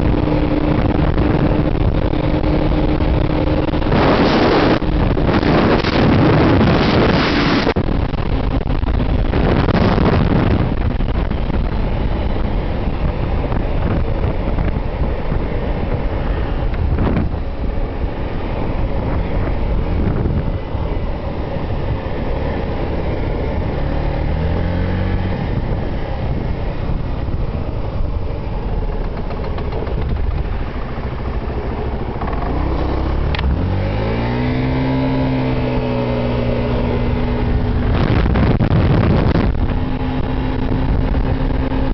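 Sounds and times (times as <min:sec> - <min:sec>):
scooter engine: 0:00.0 - 0:41.9
wind rushing over microphone: 0:00.0 - 0:41.9.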